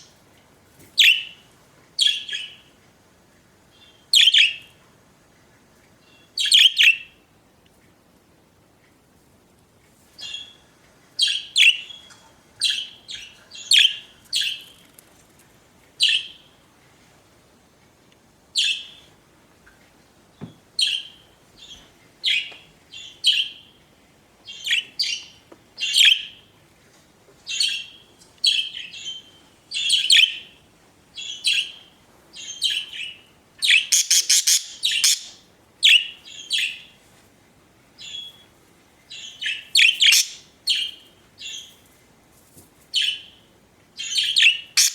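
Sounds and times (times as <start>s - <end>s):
budgerigars chirping: 32.4s - 36.9s, 39.2s - 41.0s, 44.0s - 44.9s.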